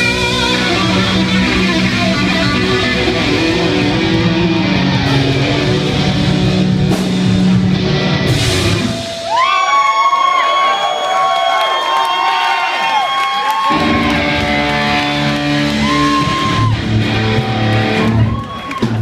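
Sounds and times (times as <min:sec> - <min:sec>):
electric guitar sustained bending notes: 0:00.0 - 0:09.1, 0:13.7 - 0:18.2
hard rock band playing: 0:00.0 - 0:09.4, 0:13.7 - 0:19.0.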